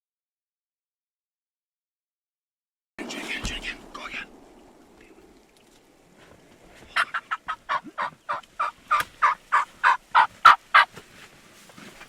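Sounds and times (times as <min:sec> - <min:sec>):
turkey yelping: 0:06.9 - 0:10.9.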